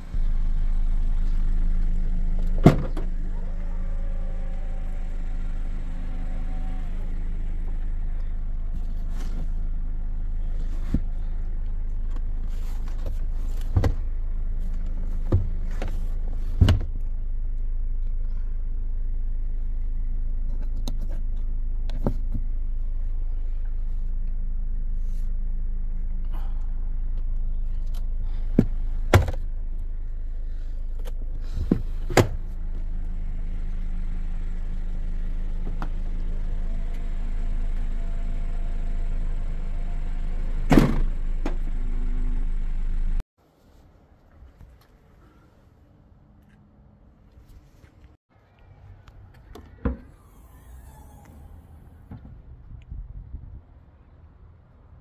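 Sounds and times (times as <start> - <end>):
car engine idling: 0.0 - 43.2.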